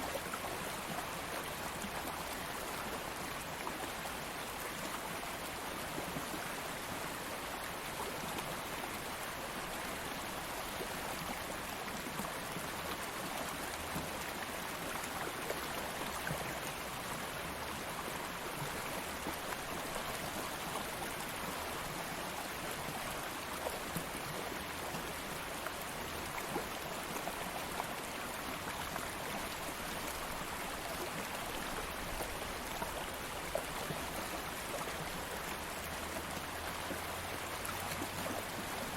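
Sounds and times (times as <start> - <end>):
stream flowing over stones: 0.0 - 38.9.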